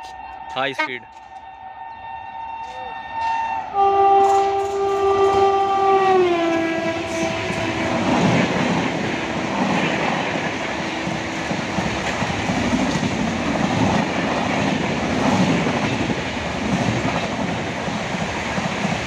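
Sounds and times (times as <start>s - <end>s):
train coaches rushing past: 0.0s - 19.0s
locomotive horn blast: 0.7s - 1.1s, 3.6s - 12.2s.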